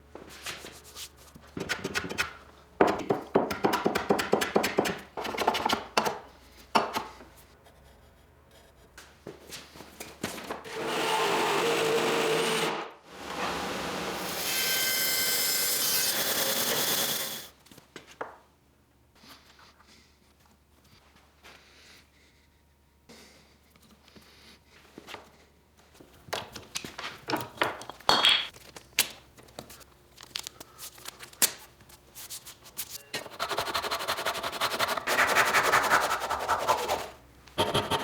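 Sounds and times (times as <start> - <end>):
hand tool scraping wood: 33.2 - 38.0.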